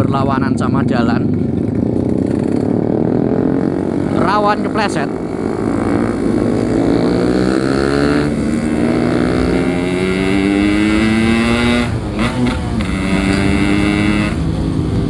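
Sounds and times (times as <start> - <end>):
two-stroke motorcycle engine revving: 0.0 - 15.0.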